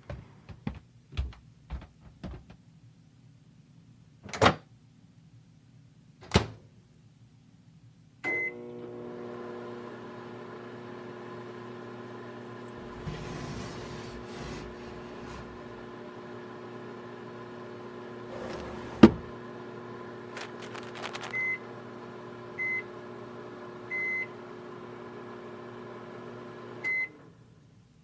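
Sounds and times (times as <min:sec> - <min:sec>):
microwave beep: 0:08.3 - 0:08.7, 0:21.2 - 0:21.7, 0:22.6 - 0:22.9, 0:23.9 - 0:24.4, 0:26.8 - 0:27.2
microwave oven humming: 0:08.3 - 0:27.6.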